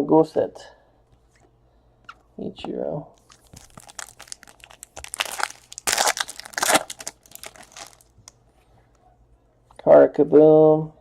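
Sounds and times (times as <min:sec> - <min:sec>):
foil wrapper tearing: 0:03.2 - 0:08.1
foil wrapper crinkling: 0:03.2 - 0:08.3.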